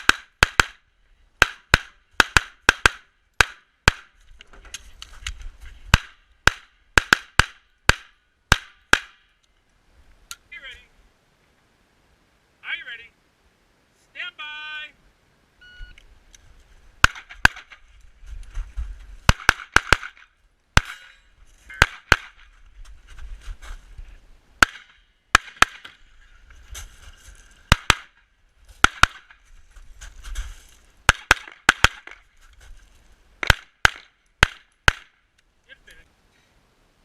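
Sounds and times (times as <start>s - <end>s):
rapid pistol shots: 0.0s - 0.8s, 1.4s - 4.1s, 5.9s - 9.2s, 17.0s - 17.8s, 19.3s - 20.2s, 27.7s - 28.2s, 28.8s - 29.3s, 31.1s - 32.2s, 33.4s - 35.1s.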